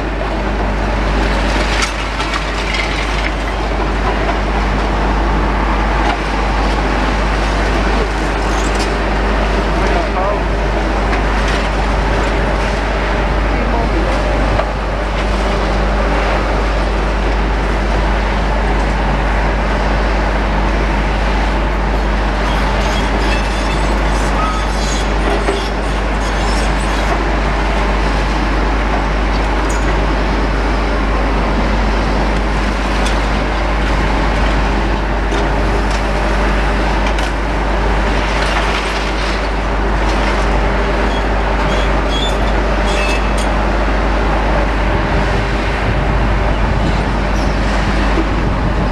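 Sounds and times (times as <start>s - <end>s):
excavator diesel engines running: 0.0s - 48.9s
debris crackling and clattering: 1.2s - 4.4s.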